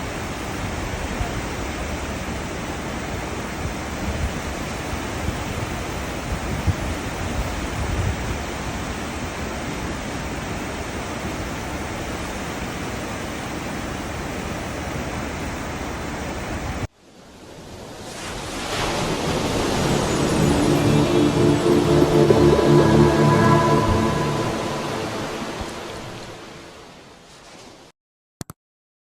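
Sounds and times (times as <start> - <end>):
ship wake churning through sea: 0.0 - 24.8
music: 19.5 - 26.7.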